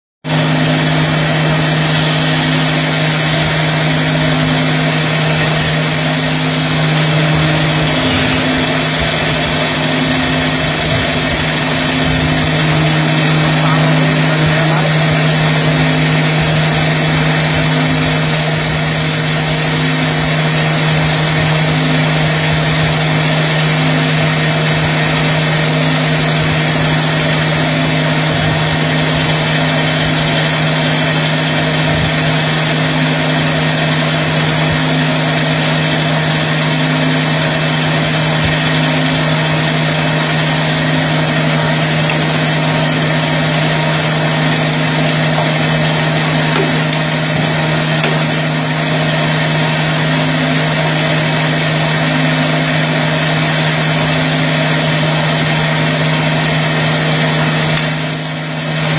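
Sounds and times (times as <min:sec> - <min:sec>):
lathe machine hum: 0:00.2 - 0:58.9
hiss: 0:00.8 - 0:08.3, 0:13.4 - 0:58.9.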